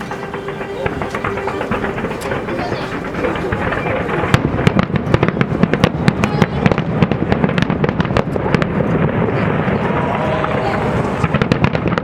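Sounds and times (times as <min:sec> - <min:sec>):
firework bangs and crackles: 0:00.0 - 0:12.0.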